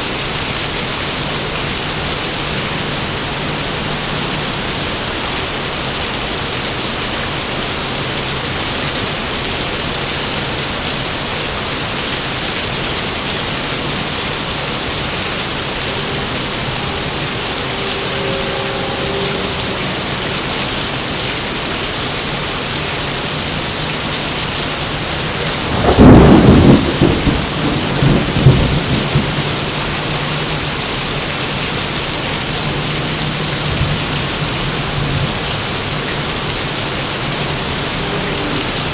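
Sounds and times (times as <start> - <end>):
heavy rain falling: 0.0 - 38.9
thunderclap with rumbling: 25.4 - 30.2.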